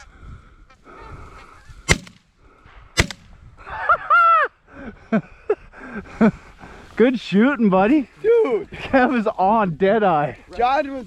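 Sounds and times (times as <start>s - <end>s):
shotgun shots: 1.9s - 2.3s, 3.0s - 3.4s.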